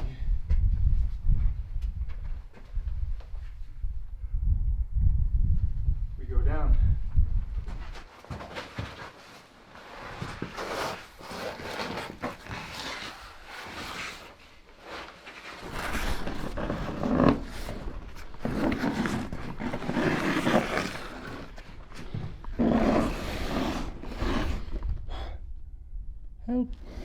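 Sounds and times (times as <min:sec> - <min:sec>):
rustling and scraping: 0:07.6 - 0:25.0.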